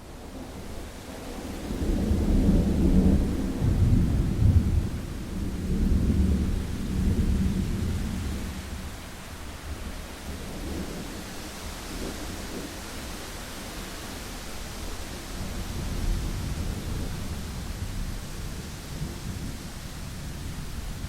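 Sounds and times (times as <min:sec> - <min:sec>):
rain hiss: 0:00.0 - 0:21.0
rolling thunder: 0:01.3 - 0:08.9, 0:14.9 - 0:21.0.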